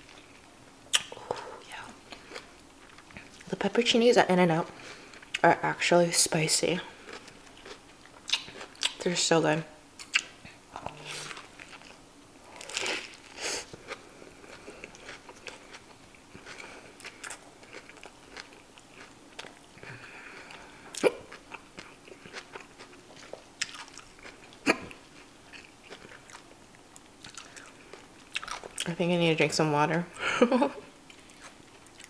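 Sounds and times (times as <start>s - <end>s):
close chewing and crunching: 0.0s - 3.5s, 6.8s - 9.1s, 10.0s - 29.0s, 31.1s - 32.0s
sharp mouth clicks: 0.9s - 1.4s.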